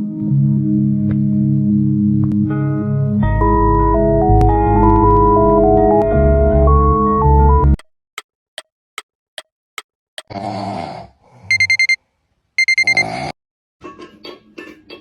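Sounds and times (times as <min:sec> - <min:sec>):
alarm clock beeping: 0:11.5 - 0:12.0, 0:12.6 - 0:13.0
clock ticking: 0:11.5 - 0:12.0.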